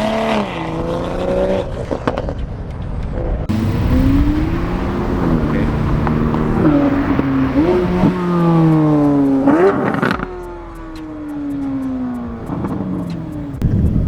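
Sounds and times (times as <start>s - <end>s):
car engine revving: 3.5s - 14.0s.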